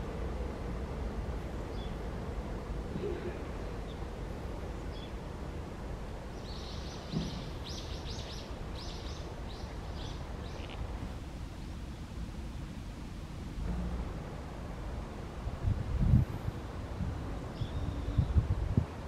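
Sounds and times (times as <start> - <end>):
low outdoor rumble: 0.0 - 19.0
low thump: 7.1 - 7.5.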